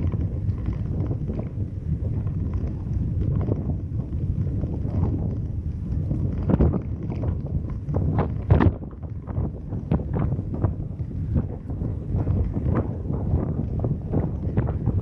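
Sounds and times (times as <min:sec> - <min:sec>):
road rumble: 0:00.0 - 0:15.0
wind buffeting microphone: 0:00.0 - 0:15.0.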